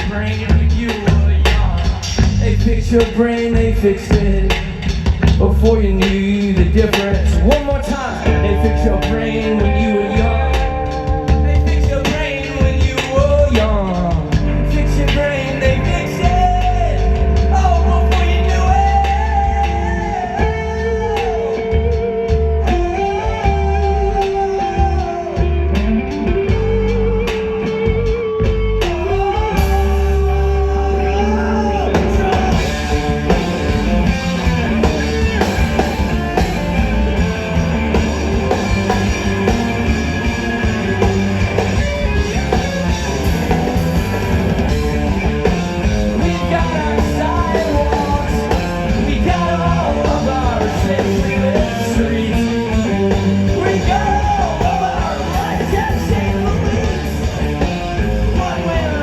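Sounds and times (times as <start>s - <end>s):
rock band playing live: 0.0s - 59.0s
person singing: 5.4s - 28.2s, 29.1s - 38.0s, 46.1s - 59.0s.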